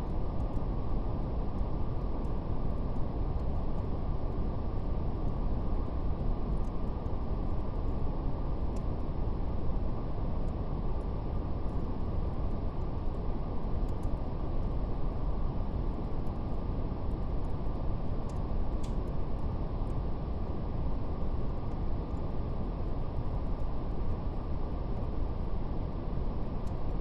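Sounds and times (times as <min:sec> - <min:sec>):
fire crackling: 0:11.2 - 0:22.3.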